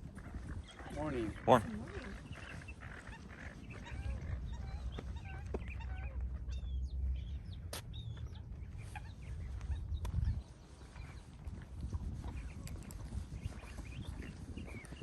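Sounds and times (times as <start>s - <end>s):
birds chirping and whistling: 12.3s - 15.0s.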